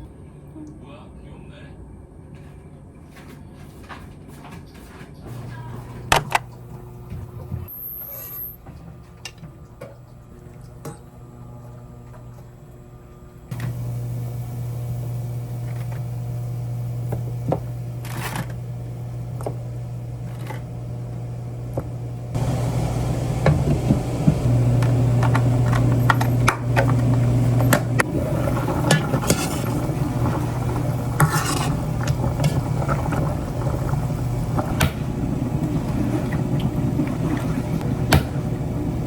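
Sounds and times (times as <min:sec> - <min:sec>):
appliance motor humming: 0:05.3 - 0:39.0.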